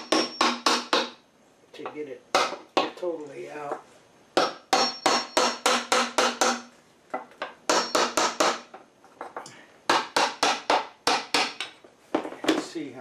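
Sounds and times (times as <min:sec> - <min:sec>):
hammer knocking wood: 0:00.0 - 0:01.2, 0:02.3 - 0:03.0, 0:04.4 - 0:08.7, 0:09.9 - 0:12.6.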